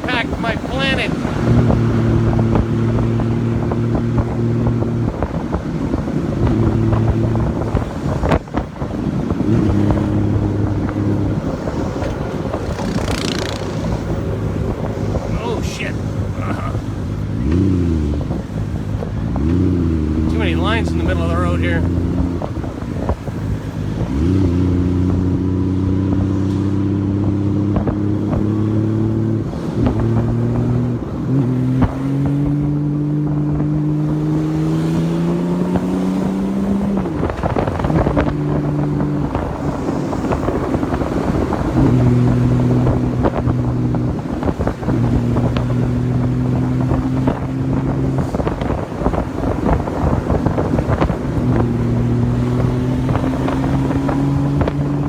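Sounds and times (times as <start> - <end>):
wind buffeting microphone: 0.0 - 55.0
motorcycle engine running: 6.4 - 26.2.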